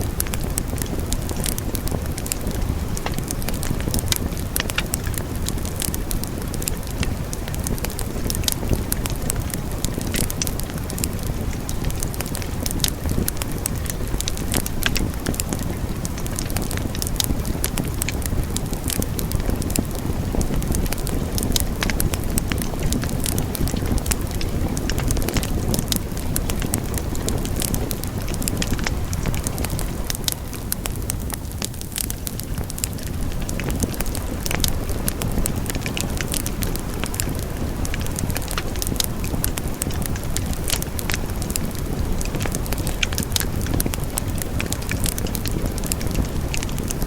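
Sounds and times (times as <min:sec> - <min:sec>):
wood fire crackling and popping: 0:00.0 - 0:47.0
wood fire rumbling: 0:00.0 - 0:47.0.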